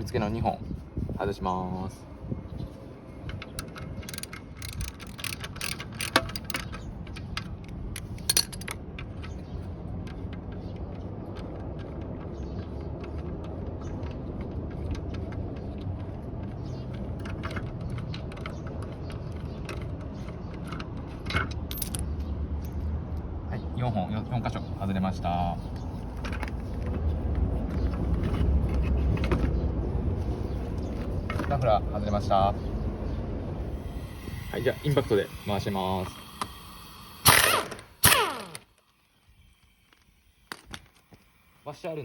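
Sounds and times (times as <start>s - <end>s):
hand tools clicking on metal bolts: 3.4s - 10.7s
steady low rumble: 24.1s - 38.4s.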